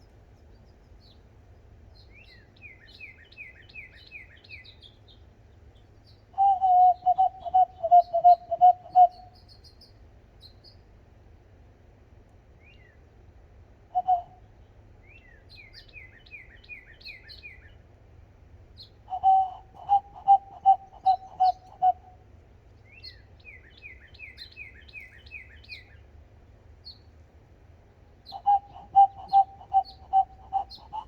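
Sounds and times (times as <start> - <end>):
bird piping notes: 6.4 - 9.4, 14.0 - 14.4, 19.1 - 22.2, 28.3 - 31.0
high falling bird chirps: 14.0 - 14.3, 18.8 - 22.0, 28.2 - 31.0.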